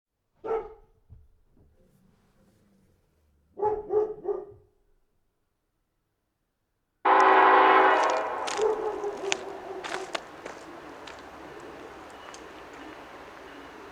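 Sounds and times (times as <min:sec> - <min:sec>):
dog barking: 0:00.4 - 0:01.0, 0:03.5 - 0:04.7, 0:07.1 - 0:13.9
locomotive horn blast: 0:07.1 - 0:13.9.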